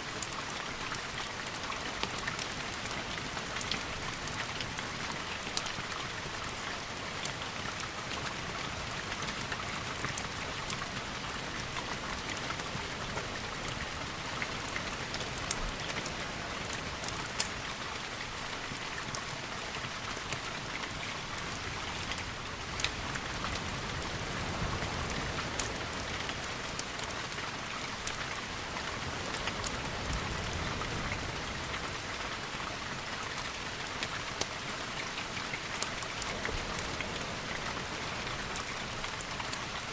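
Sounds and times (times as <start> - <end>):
rain hissing: 10.2 - 39.9
sharp ticks and pops: 16.7 - 17.7.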